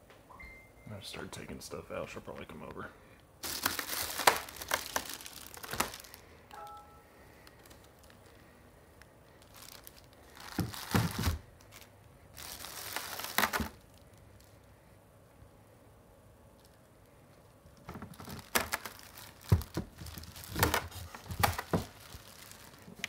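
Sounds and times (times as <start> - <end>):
packaging crinkling and tearing: 3.4 - 14.7, 17.6 - 23.0.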